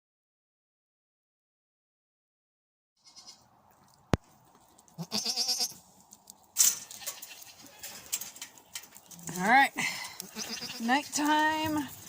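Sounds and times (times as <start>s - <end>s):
goat bleating: 3.0s - 3.5s, 4.9s - 5.9s, 6.8s - 8.1s, 9.7s - 11.9s.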